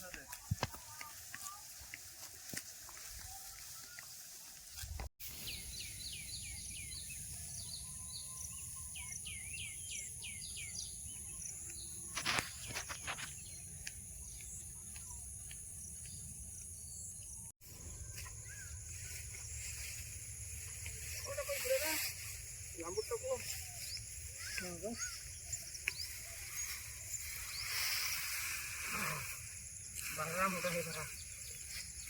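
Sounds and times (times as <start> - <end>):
birds chirping: 5.3 - 32.0.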